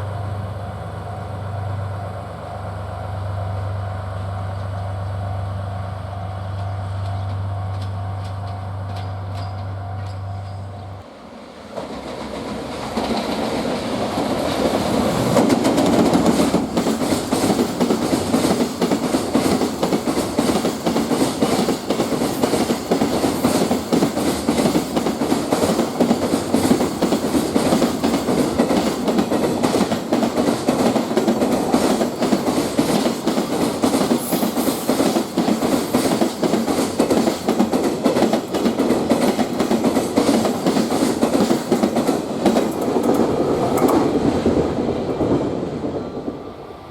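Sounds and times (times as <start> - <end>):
freight train rumble: 0.0 - 46.9
train wheel clicks: 6.5 - 10.7, 11.8 - 44.4.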